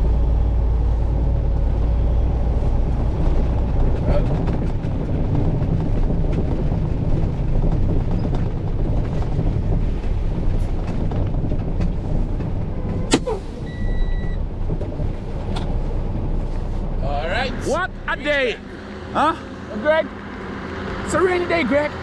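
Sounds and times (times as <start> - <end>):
truck engine running: 0.0 - 22.0
brief beep: 13.6 - 14.4.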